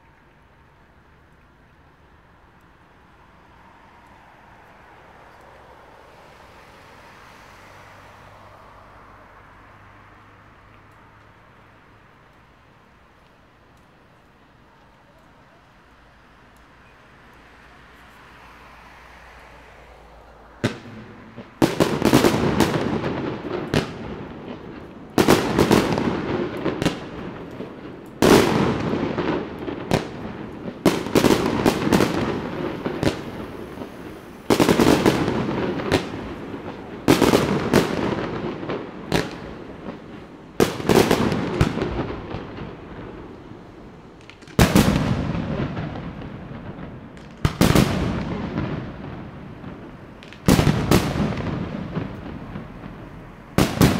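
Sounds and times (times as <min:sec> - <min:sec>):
fireworks crackling: 0:00.0 - 0:09.6, 0:10.3 - 0:53.9
fireworks bursting with bangs: 0:20.6 - 0:53.9.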